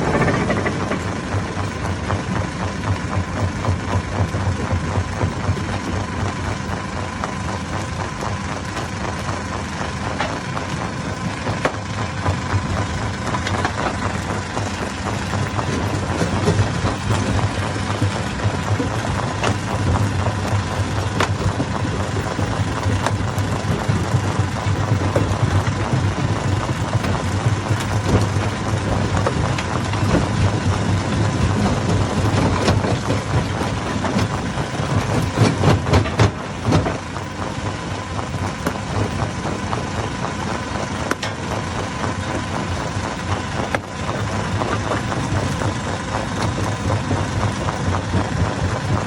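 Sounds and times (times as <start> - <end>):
stone crusher engine drone: 0.0 - 49.0
rocks knocking and cracking: 10.1 - 37.4, 41.0 - 41.5.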